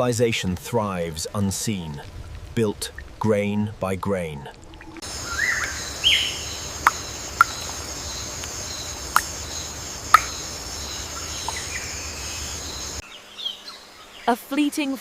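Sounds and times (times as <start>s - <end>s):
insects droning: 0.0s - 15.0s
bird chirps: 5.0s - 14.3s.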